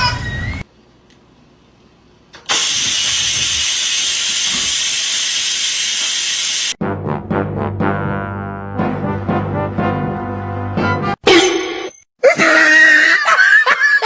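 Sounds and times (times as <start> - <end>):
loud steady hiss: 2.5 - 6.8.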